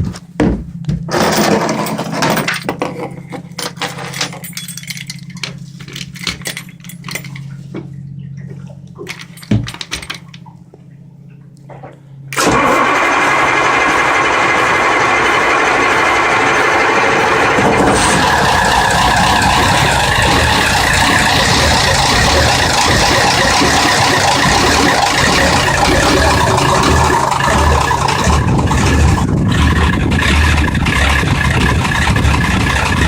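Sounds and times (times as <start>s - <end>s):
low hum with knocks and clicks: 0.0s - 33.0s
diesel engine starting and running: 1.0s - 33.0s.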